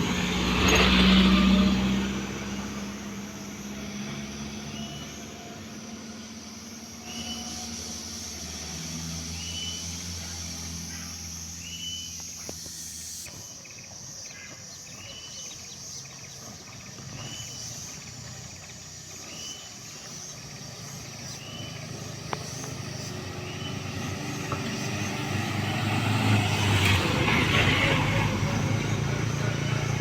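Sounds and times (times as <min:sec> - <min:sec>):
vehicle engine hum: 0:00.0 - 0:30.0
bird chirping: 0:02.4 - 0:25.9.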